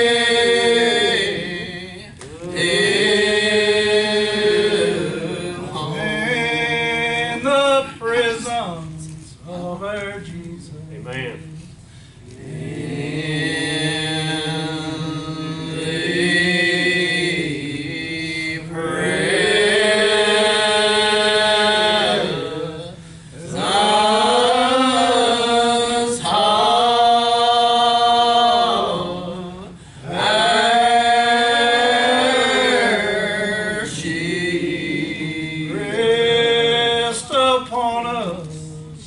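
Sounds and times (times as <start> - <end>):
people singing a hymn: 0.0 - 10.8, 11.4 - 39.0.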